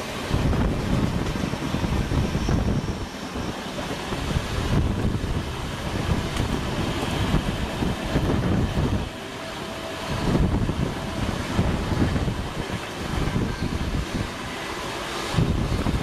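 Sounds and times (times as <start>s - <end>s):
passing train alongside: 0.0s - 16.0s
train wheels rumbling on rails: 0.0s - 16.0s
wind on microphone: 0.0s - 16.0s.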